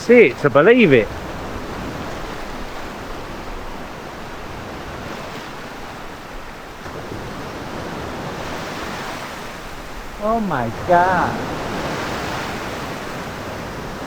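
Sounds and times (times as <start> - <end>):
sea surf on a beach: 0.0 - 14.0.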